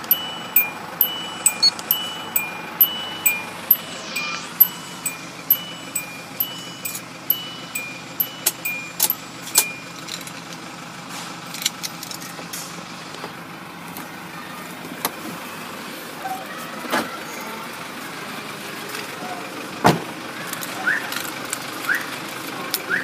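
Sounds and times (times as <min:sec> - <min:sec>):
sharp clicks: 0:00.0 - 0:09.8.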